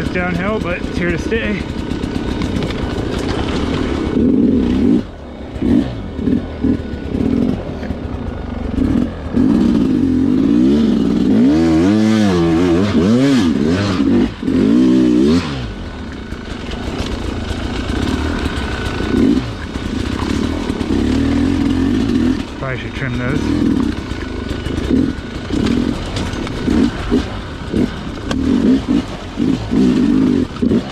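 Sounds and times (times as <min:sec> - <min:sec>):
bike clatter: 0:00.0 - 0:04.2, 0:16.1 - 0:22.6, 0:23.6 - 0:30.9
dirt bike engine revving: 0:00.0 - 0:30.9.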